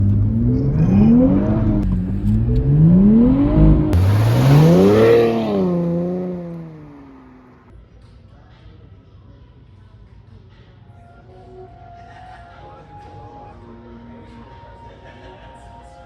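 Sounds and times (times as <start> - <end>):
car engine accelerating hard: 0.0 - 7.7.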